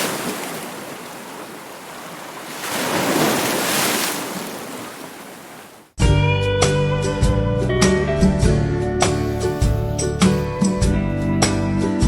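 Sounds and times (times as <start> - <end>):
ocean wave washing: 0.0 - 5.9.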